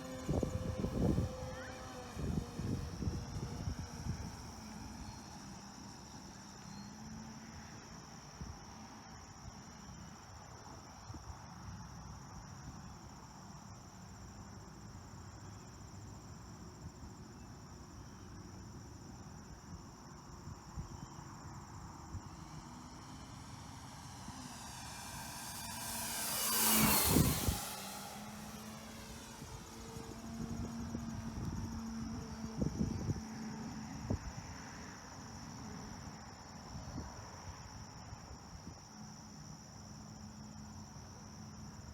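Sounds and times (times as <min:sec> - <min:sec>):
low wind rumble: 0:00.0 - 0:06.5, 0:20.5 - 0:37.3
model airplane motor and propeller: 0:00.0 - 0:07.8, 0:21.6 - 0:34.6
high-pitched insect trill: 0:00.0 - 0:41.9.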